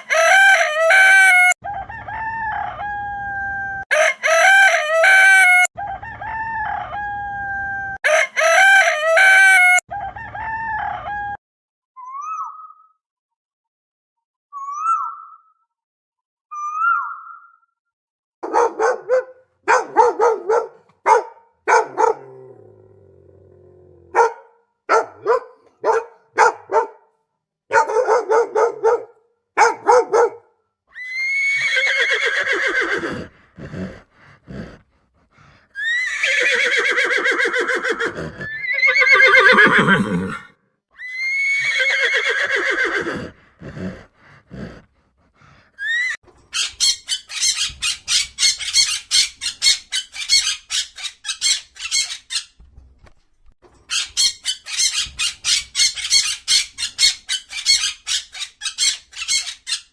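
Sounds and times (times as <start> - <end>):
horse whinnying: 31.0 - 34.8, 35.8 - 44.8.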